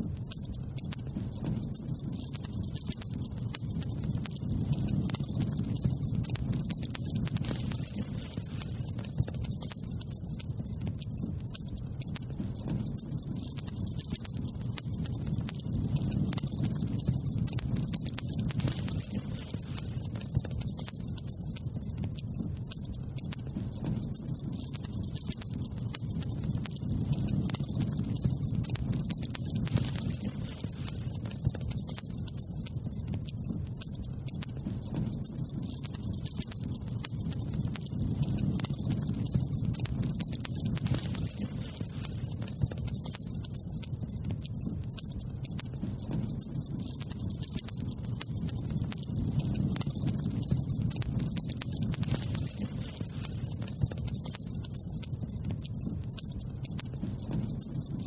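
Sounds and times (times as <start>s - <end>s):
campfire crackling and popping: 0.0s - 58.0s
steady low rumble: 17.1s - 20.6s, 27.1s - 31.7s, 40.8s - 42.5s.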